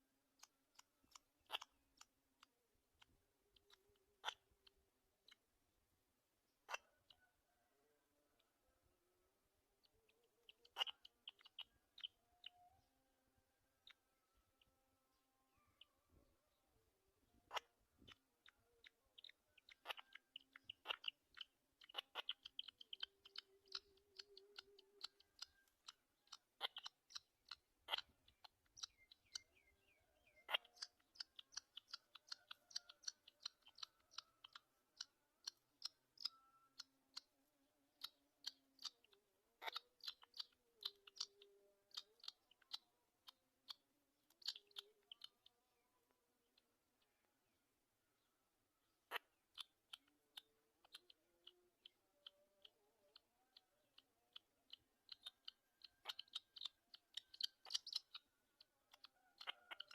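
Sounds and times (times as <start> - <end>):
short high bird peeps: 0.4 - 2.1, 17.5 - 37.3, 38.0 - 45.5, 53.9 - 58.3, 59.0 - 59.9.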